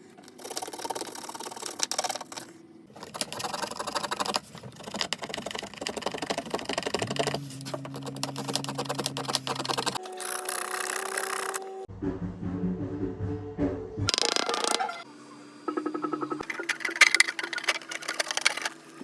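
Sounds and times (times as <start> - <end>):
hand tool scratching and clicking: 0.0 - 11.7.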